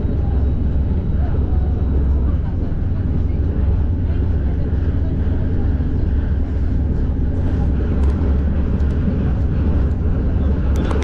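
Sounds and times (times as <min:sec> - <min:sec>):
train rumbling: 0:00.0 - 0:11.0
train clicks: 0:06.9 - 0:11.0.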